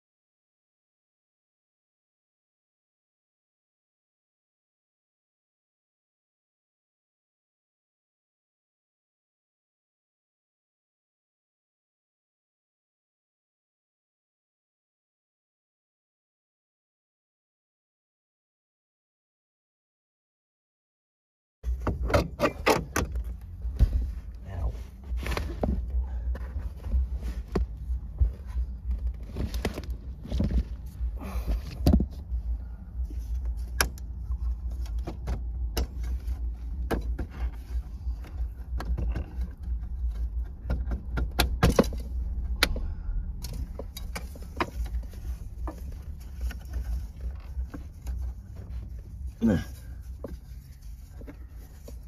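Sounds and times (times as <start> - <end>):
steady low hum: 21.7 - 52.0.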